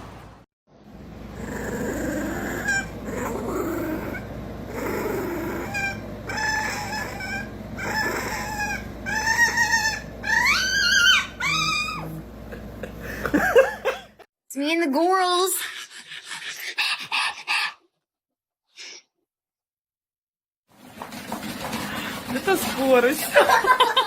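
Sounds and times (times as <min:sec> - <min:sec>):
dog whining and howling: 0:01.4 - 0:12.3.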